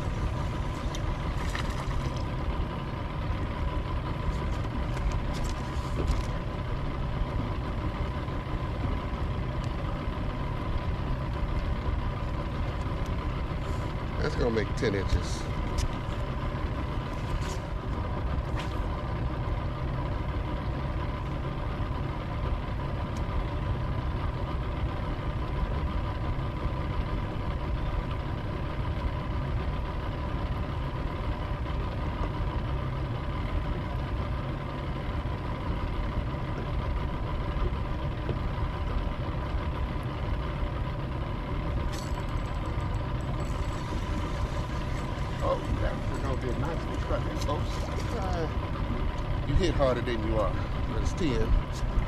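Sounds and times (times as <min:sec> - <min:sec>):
outboard motor idling: 0:00.0 - 0:52.0.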